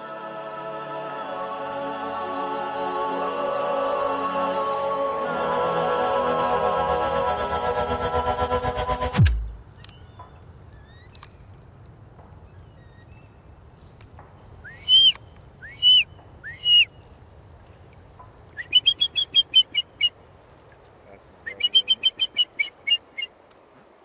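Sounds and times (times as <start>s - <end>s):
bird calling with whistled notes: 9.3s - 11.5s, 12.4s - 13.4s, 14.6s - 17.1s, 18.5s - 20.2s, 21.4s - 23.4s.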